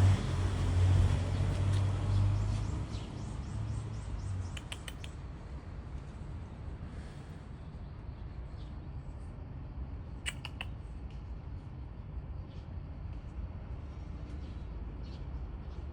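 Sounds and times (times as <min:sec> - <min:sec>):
low background rumble: 0:03.4 - 0:15.9
quick sharp clicks: 0:04.5 - 0:05.2, 0:10.2 - 0:10.8.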